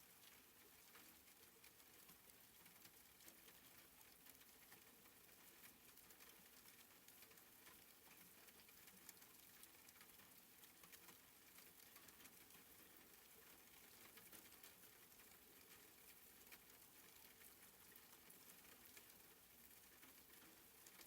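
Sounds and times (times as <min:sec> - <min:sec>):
soft rain patter: 0:00.0 - 0:21.0.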